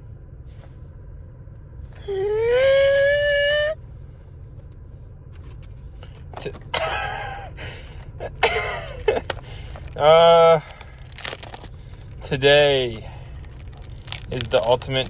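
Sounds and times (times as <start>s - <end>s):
drawn-out wailing voice: 2.0s - 3.8s
short wavering vocal sound: 2.0s - 3.8s.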